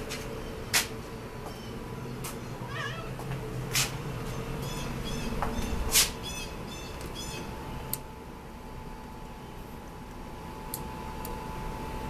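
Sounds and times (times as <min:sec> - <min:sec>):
bird chirping: 0:04.3 - 0:07.5.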